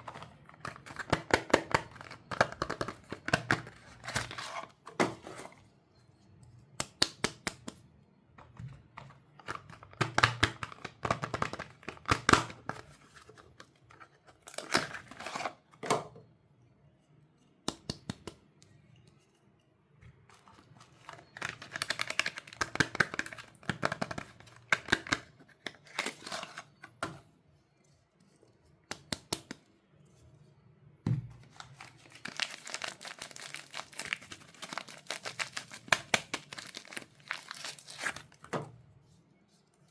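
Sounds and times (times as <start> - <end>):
wrappers crinkling and tearing: 21.0 - 23.5, 31.5 - 38.4.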